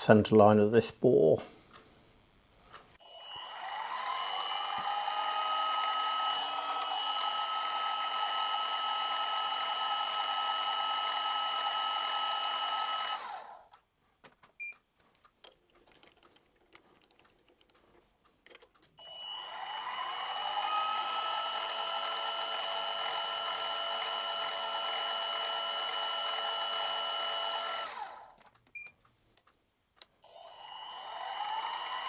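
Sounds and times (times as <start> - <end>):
milling machine motor whine: 3.0 - 13.6, 19.0 - 28.2, 30.3 - 32.0
small clicks and taps: 13.7 - 19.0.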